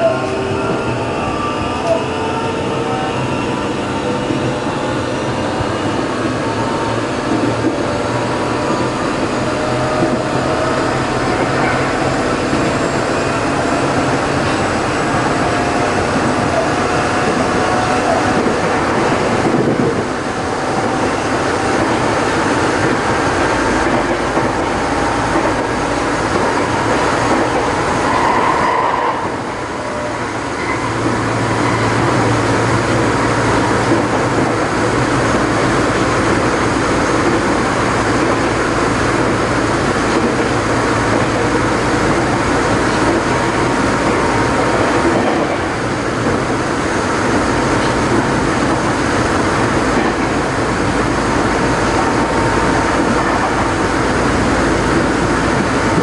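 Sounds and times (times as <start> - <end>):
wheels rumbling on rail: 0.0 - 56.0.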